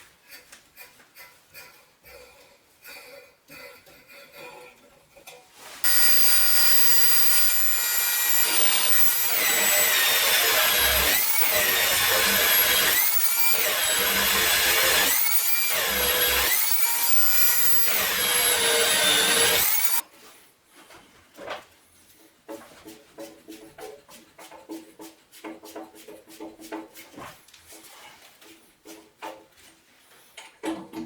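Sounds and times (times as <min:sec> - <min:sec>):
angle grinder cutting metal: 0:05.8 - 0:20.0.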